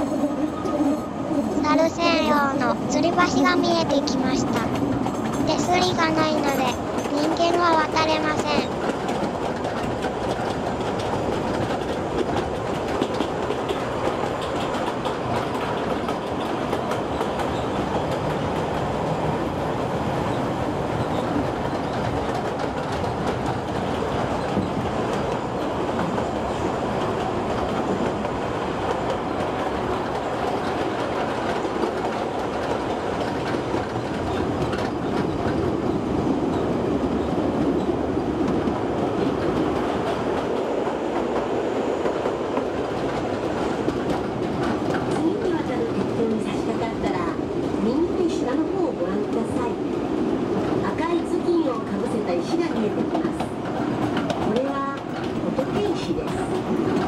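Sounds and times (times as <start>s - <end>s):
train wheels clacking over joints: 1.7s - 19.3s, 20.1s - 57.0s.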